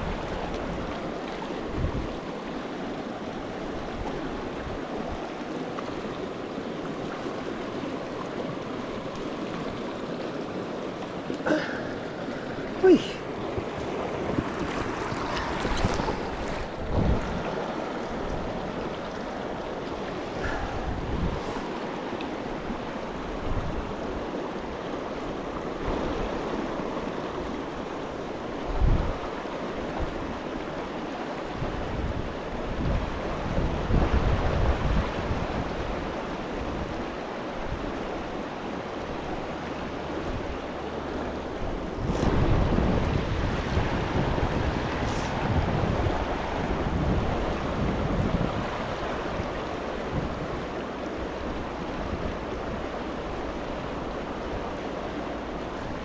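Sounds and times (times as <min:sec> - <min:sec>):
creek rushing: 0:00.0 - 0:56.0
wind buffeting microphone: 0:01.6 - 0:02.4, 0:12.7 - 0:21.9, 0:31.6 - 0:37.0, 0:41.2 - 0:56.0.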